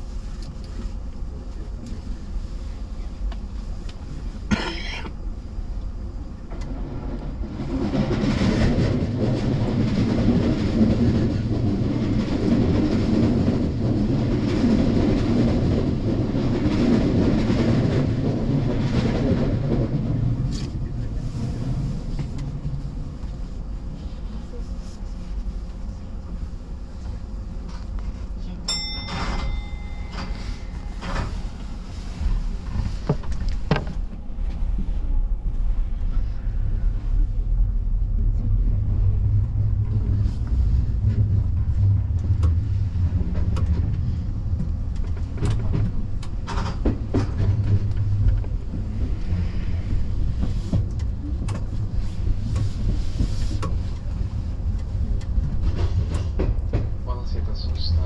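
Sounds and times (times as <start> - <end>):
wheels rumbling on rail: 0.0 - 58.0.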